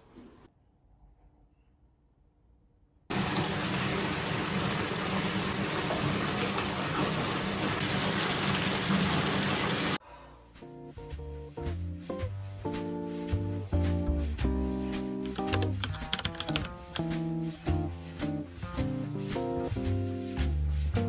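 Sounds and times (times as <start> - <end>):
running water rushing: 3.1 - 10.0.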